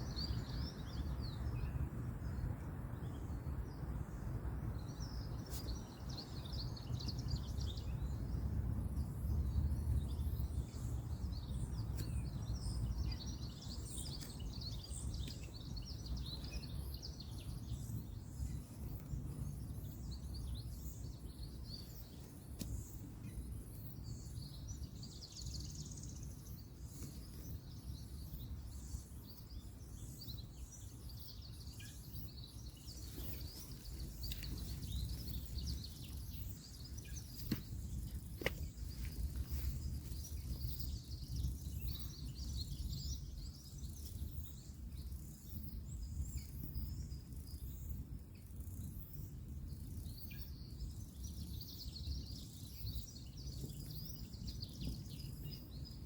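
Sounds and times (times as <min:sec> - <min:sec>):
birds chirping: 0:10.1 - 0:45.8.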